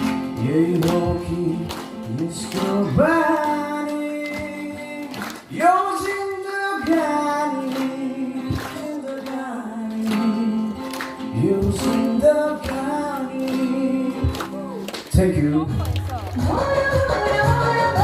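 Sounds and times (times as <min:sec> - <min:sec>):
woman singing: 0:16.2 - 0:18.0.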